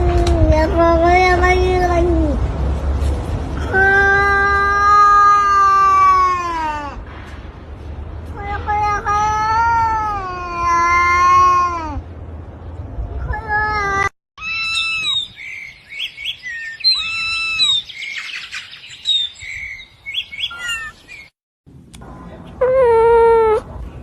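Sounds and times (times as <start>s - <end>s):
high-pitched chirping calls: 14.4s - 21.3s.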